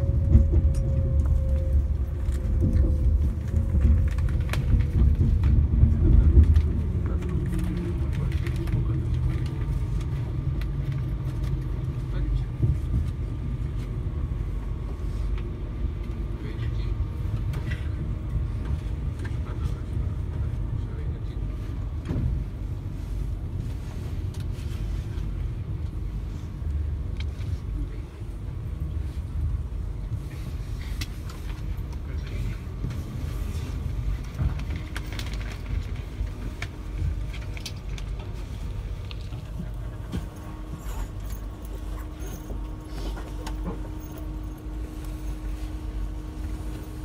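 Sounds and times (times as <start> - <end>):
train running rumble: 0.0 - 47.0.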